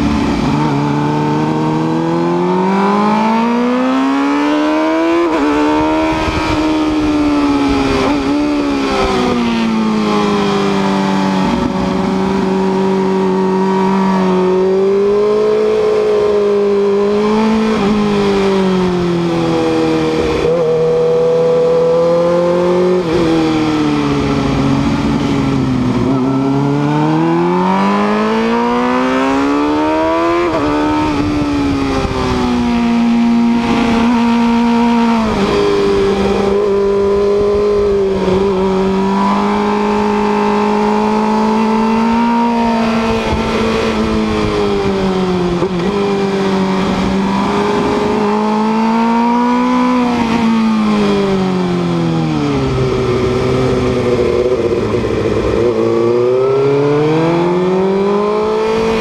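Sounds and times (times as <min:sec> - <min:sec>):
motorcycle engine accelerating: 0:00.0 - 0:59.0
wind rush: 0:29.6 - 0:49.0.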